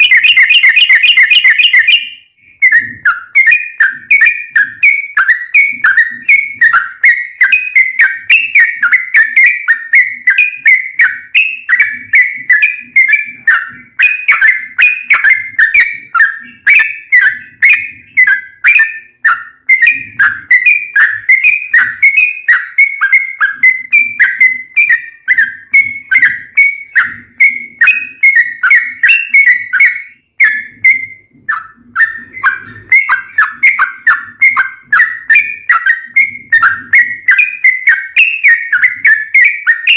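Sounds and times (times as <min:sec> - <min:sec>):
bird singing rapid bubbling notes: 0:00.0 - 0:39.9.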